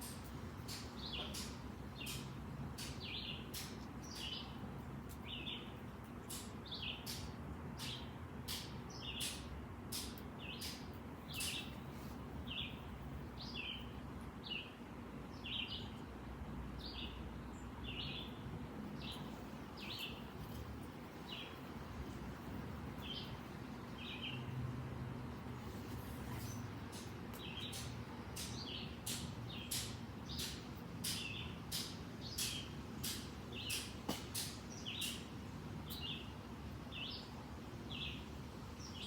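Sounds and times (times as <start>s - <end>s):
bird chirping: 2.8s - 4.6s, 10.4s - 11.8s, 12.4s - 16.0s, 16.8s - 18.4s, 19.0s - 24.6s, 25.6s - 35.3s, 35.9s - 36.3s.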